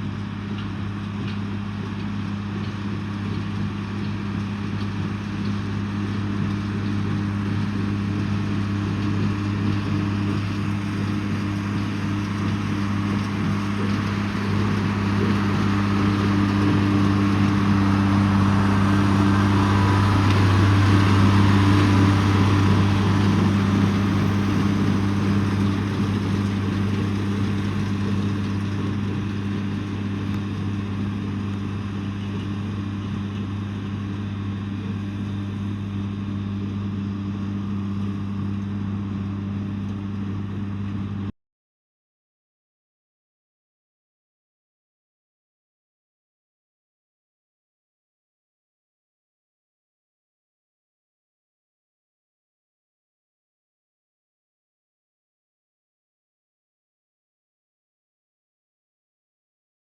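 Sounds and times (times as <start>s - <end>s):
tractor diesel engine running: 0.0s - 41.2s.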